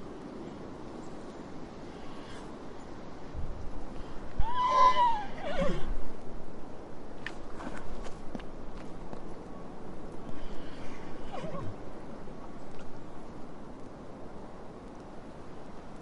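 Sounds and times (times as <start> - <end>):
horse whinnying: 4.4 - 6.0, 11.3 - 11.8.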